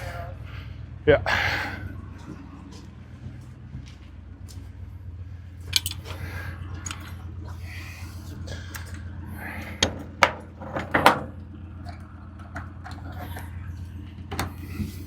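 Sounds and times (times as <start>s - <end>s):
steady low hum: 0.0s - 15.0s
sharp clanks and knocks: 5.6s - 6.2s, 9.8s - 13.6s.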